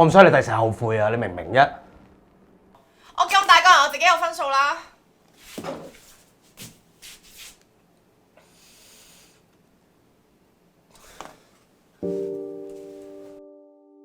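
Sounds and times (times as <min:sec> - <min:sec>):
piano chord ringing: 0:12.0 - 0:14.0.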